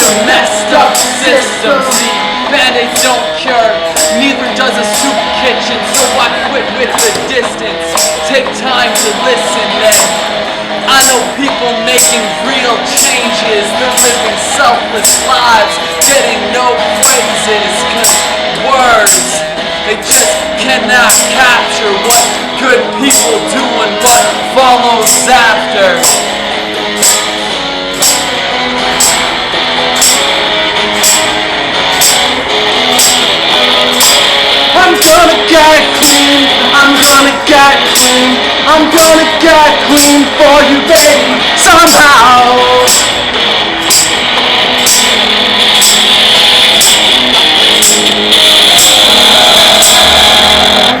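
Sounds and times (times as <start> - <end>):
tambourine struck: 0.0 - 3.2, 3.8 - 6.3, 6.9 - 10.4, 13.0 - 19.4, 22.0 - 23.5, 25.0 - 25.4, 26.0 - 51.0
electric guitar riff: 0.0 - 51.0.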